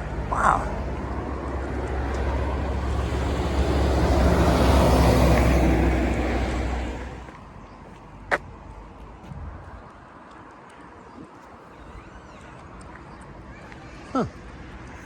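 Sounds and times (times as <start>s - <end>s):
vehicle driving past: 0.0s - 7.3s.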